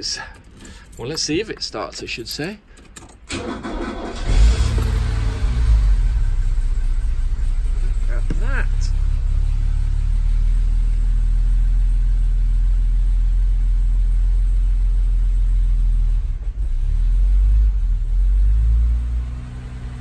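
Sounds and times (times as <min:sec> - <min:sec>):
car engine idling: 0:03.3 - 0:16.6.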